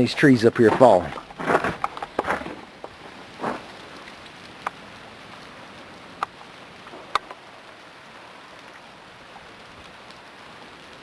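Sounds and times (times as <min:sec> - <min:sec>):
icy branches cracking: 0:00.0 - 0:04.8
hiss of freezing rain: 0:00.0 - 0:11.0.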